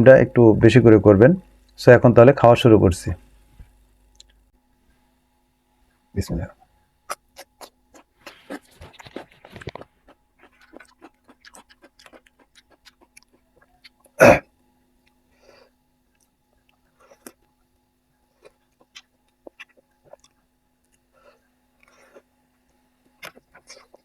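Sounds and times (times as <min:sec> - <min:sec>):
faint steady hum: 0:00.0 - 0:24.0
person chewing: 0:04.1 - 0:04.4, 0:07.1 - 0:14.2, 0:15.0 - 0:24.0.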